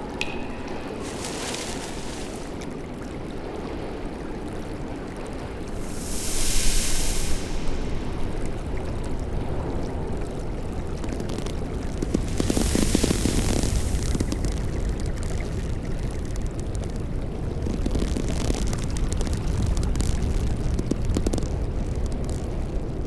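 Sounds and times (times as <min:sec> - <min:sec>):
rushing water: 0:00.0 - 0:15.7.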